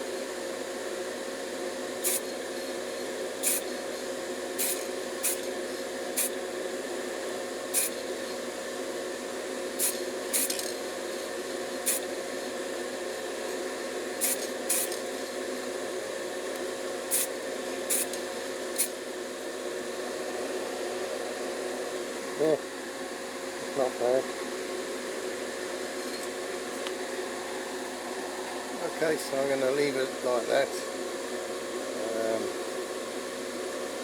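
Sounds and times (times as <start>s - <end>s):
steady background hum: 0.0s - 34.0s
spray paint hissing: 2.0s - 2.3s, 3.4s - 3.7s, 4.6s - 5.5s, 6.2s - 6.4s, 7.7s - 8.0s, 9.8s - 10.6s, 11.8s - 12.1s, 14.2s - 15.0s, 17.1s - 17.3s, 17.9s - 18.2s.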